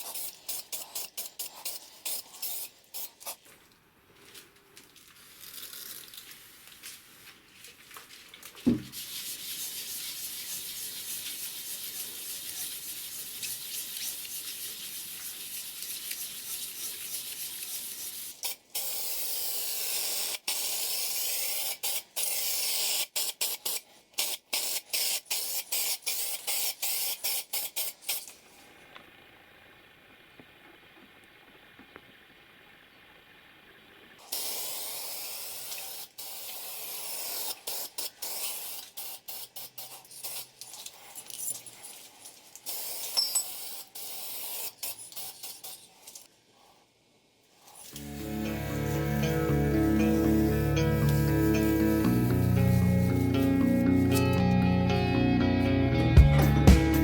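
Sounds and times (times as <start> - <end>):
paint spraying hiss: 0.0 - 3.4, 8.8 - 28.3, 34.2 - 40.6, 47.7 - 54.5
sharp thump: 8.7 - 9.0.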